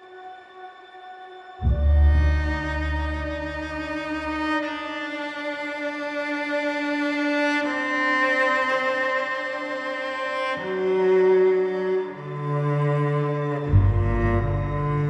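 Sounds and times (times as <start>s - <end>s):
deep bass note: 1.6s - 4.3s, 13.7s - 15.0s
lower string line: 1.6s - 15.0s
sustained violin notes: 1.6s - 15.0s.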